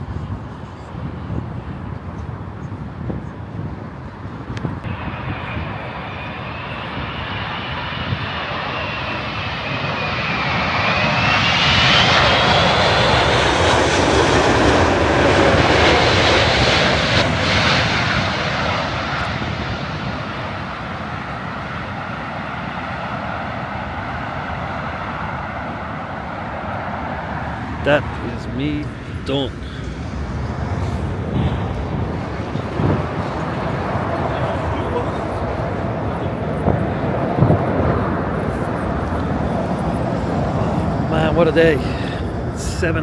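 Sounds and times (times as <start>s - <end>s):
jet airliner flying over: 0.0s - 43.0s.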